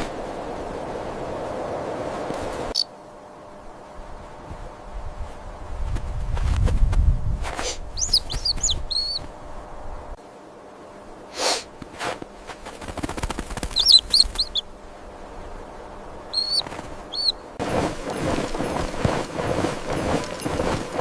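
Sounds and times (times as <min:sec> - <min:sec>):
small bird chirping: 0:02.7 - 0:02.9, 0:07.9 - 0:09.3, 0:13.6 - 0:14.7, 0:16.3 - 0:17.5.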